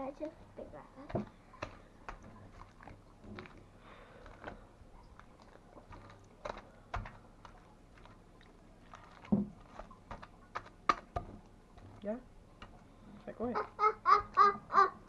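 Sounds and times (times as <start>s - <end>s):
sticky slime clicks and smacks: 5.2s - 8.2s.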